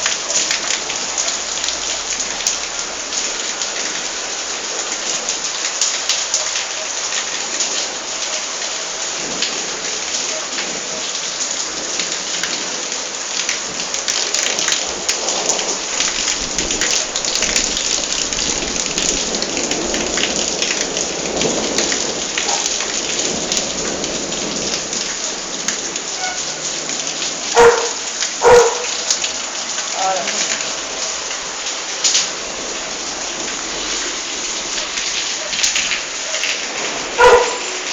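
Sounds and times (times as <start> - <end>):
heavy rain pattering: 0.0 - 37.9
thunder rumble: 14.8 - 26.0.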